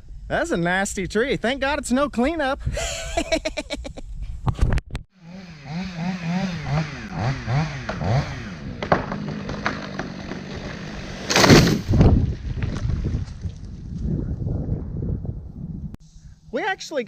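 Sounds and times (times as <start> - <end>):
engine revving: 5.2 - 11.9.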